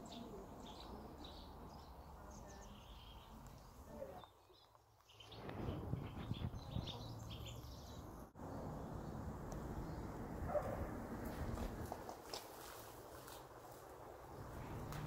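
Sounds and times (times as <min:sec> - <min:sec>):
birds chirping: 0:00.0 - 0:10.8
low outdoor rumble: 0:13.0 - 0:15.0.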